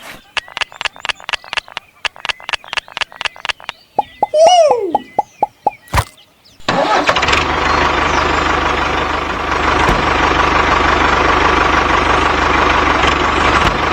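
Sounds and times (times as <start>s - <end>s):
small tractor engine running: 5.9s - 13.9s.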